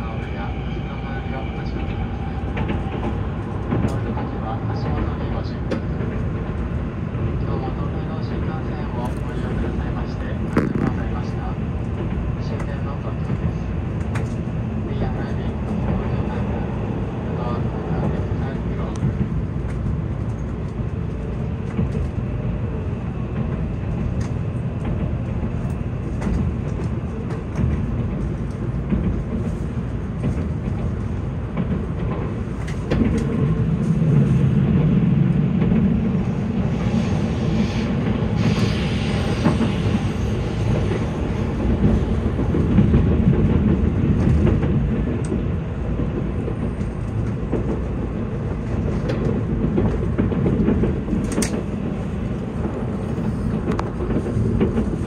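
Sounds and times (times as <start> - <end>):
train wheels rumbling on rail: 0.0 - 55.0
hiss: 37.6 - 39.9.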